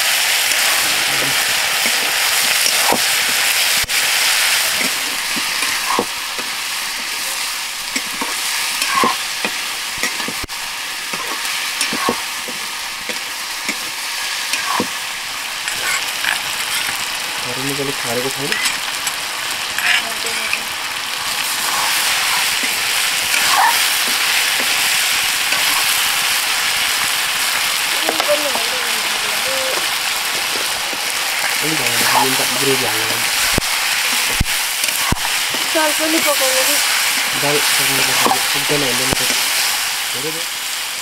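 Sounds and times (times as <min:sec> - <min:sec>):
chicken sizzling in hot oil: 0:00.0 - 0:41.0
metal spatula scraping pan: 0:15.7 - 0:17.0, 0:19.7 - 0:20.6, 0:25.5 - 0:26.1.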